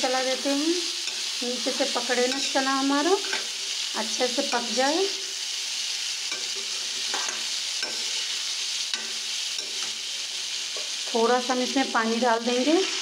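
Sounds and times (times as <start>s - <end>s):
chickpeas sizzling in oil: 0.0s - 13.0s
metal spatula scraping a pan: 1.0s - 3.7s, 6.2s - 11.2s.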